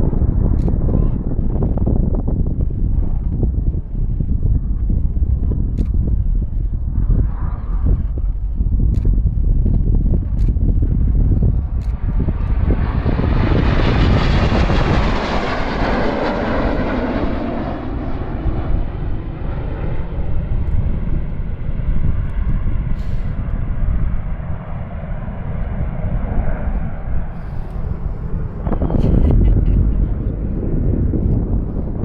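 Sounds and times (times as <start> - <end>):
jets flying past: 11.0 - 32.0.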